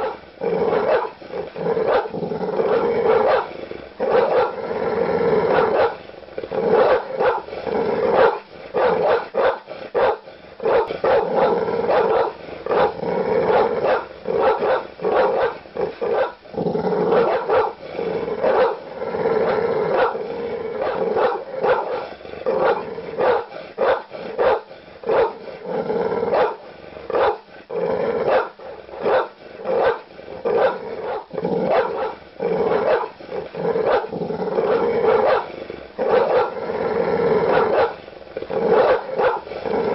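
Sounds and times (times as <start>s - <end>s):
large dogs barking: 0.0s - 4.7s, 5.4s - 16.4s, 17.0s - 27.6s, 28.2s - 36.7s, 37.4s - 39.9s.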